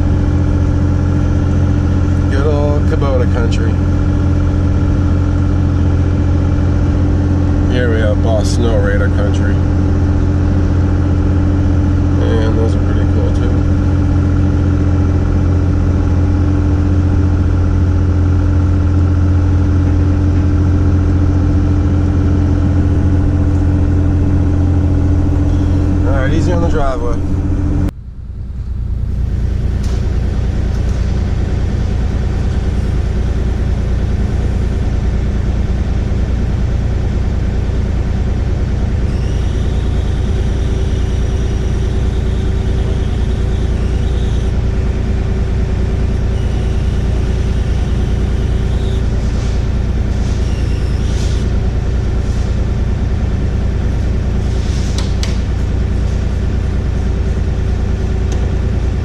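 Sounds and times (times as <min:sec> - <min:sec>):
diesel engine running: 0:00.0 - 0:59.0
high-pitched squeals: 0:39.0 - 0:44.8, 0:46.1 - 0:51.5.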